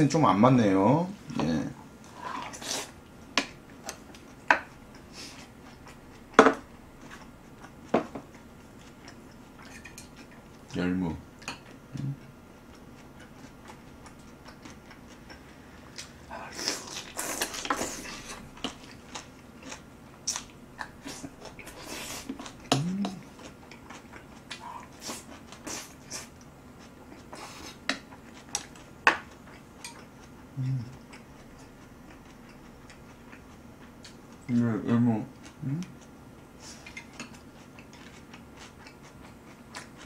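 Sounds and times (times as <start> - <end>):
chewing and crunching: 2.1 - 10.8, 11.4 - 40.0
person humming mm: 11.9 - 12.2, 22.7 - 23.3, 30.5 - 31.0, 35.6 - 35.9.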